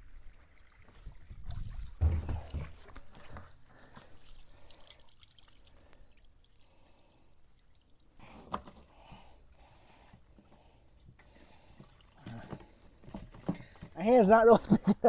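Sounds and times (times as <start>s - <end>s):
water pouring and trickling: 0.0s - 14.6s
low thump: 2.0s - 2.8s.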